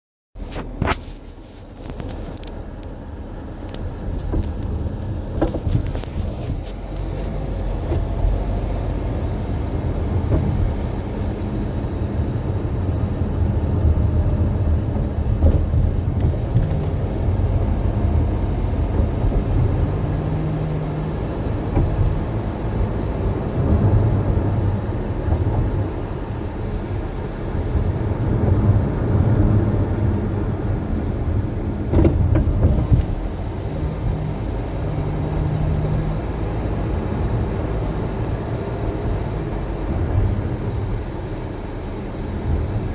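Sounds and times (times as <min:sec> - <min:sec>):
low road rumble: 0:00.4 - 0:42.9
suspension knocks: 0:31.9 - 0:33.2.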